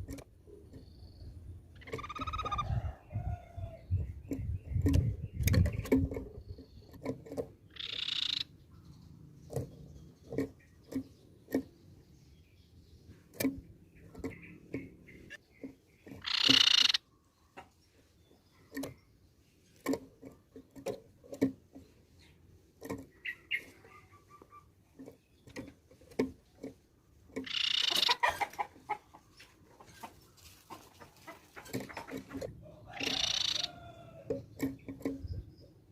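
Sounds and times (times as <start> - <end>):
bird harsh chattering calls: 1.7 - 2.6, 7.7 - 8.6, 16.2 - 17.1, 23.1 - 24.7, 27.4 - 29.0, 31.3 - 33.8.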